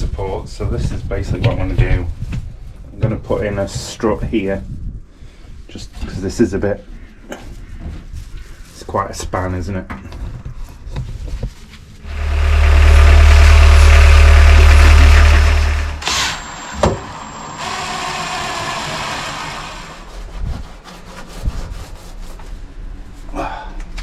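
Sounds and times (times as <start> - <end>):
quiet steady running sound: 11.0 - 20.2
power tool running loudly: 12.0 - 20.1.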